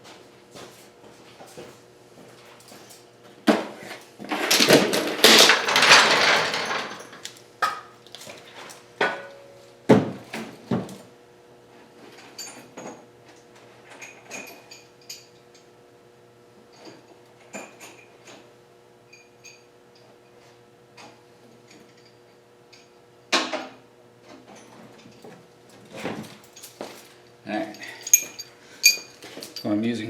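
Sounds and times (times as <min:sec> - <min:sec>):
metal tools clanking: 0:04.3 - 0:07.3, 0:26.4 - 0:29.8.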